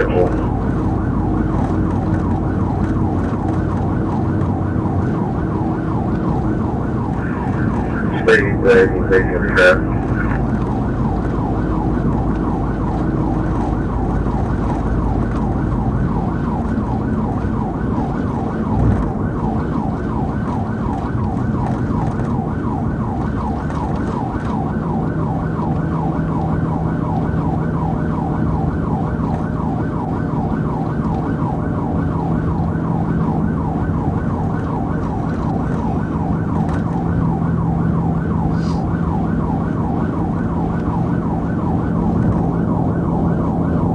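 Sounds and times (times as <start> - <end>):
low hum: 0.0 - 19.6
car engine and road noise: 0.0 - 43.9
police siren yelping: 0.0 - 43.9.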